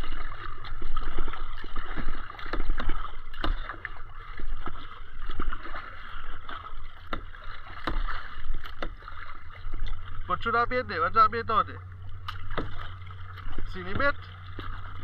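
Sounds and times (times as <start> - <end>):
small knocks and splashes: 0.0 - 10.7, 11.8 - 15.0
water sloshing around a kayak: 0.0 - 15.0
low rumble: 9.4 - 15.0.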